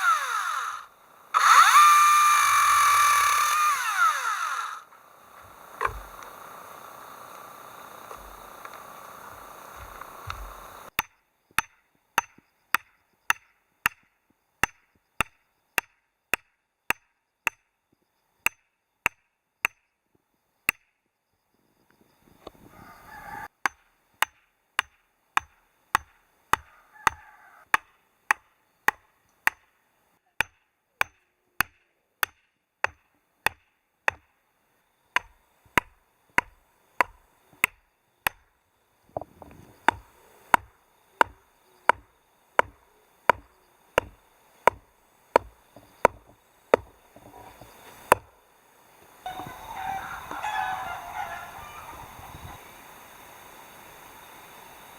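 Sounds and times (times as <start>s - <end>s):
chopping strikes: 5.4s - 6.4s, 39.2s - 48.3s.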